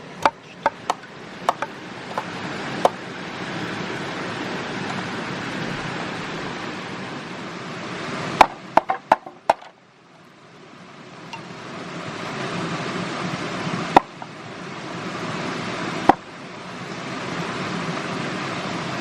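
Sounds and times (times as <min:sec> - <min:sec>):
steady rushing noise: 0:00.0 - 0:09.8
sharp knocks on wood: 0:00.2 - 0:03.0, 0:08.4 - 0:09.7.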